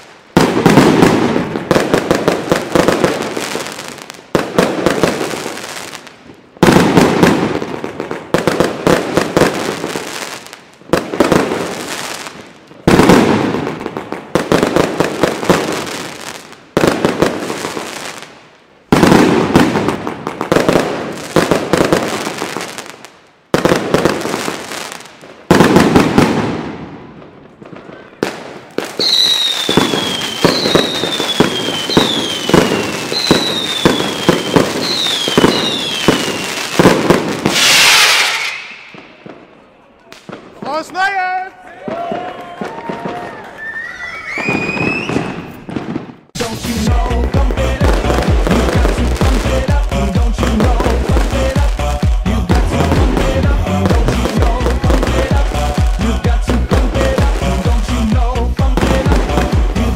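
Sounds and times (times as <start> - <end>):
fireworks bangs with crackling: 0.0 - 43.8, 44.4 - 59.9
falling firework whistles: 28.9 - 39.2, 42.7 - 46.2.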